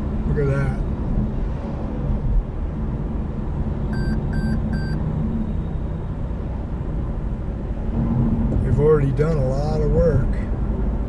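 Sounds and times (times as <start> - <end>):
car engine and road rumble: 0.0 - 11.0
short high electronic beeps: 4.0 - 5.0.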